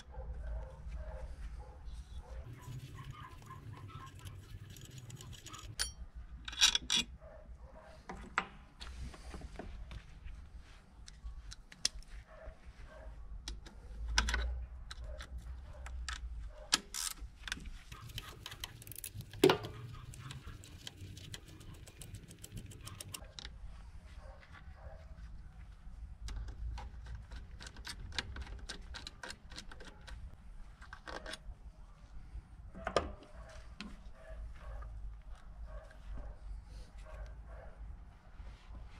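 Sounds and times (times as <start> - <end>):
metal tools clinking and knocking: 4.6 - 7.2.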